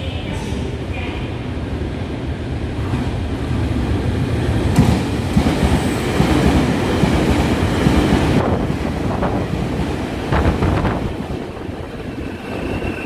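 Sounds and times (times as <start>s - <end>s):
train wheels clattering on rails: 4.7s - 11.2s.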